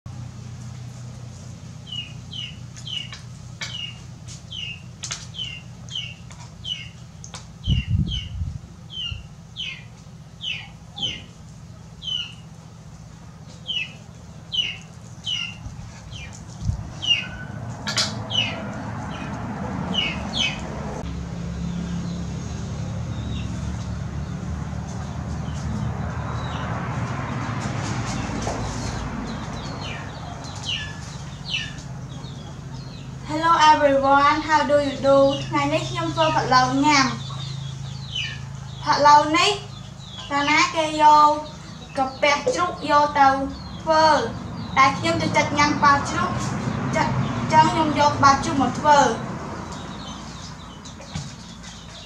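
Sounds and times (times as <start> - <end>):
bird chirping: 1.8 - 12.7, 13.3 - 20.8, 28.1 - 45.7.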